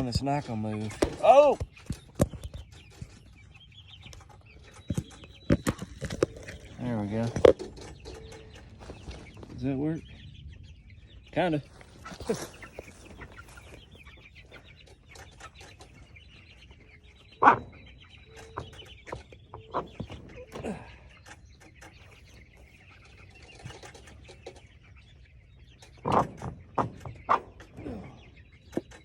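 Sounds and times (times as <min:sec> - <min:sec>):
chickens clucking: 0:00.0 - 0:29.0
chicken short calls: 0:11.6 - 0:24.8.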